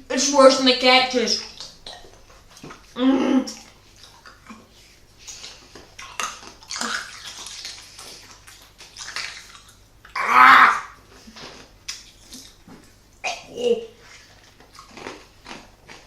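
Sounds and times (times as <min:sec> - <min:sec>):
person crying out: 0:10.2 - 0:11.0.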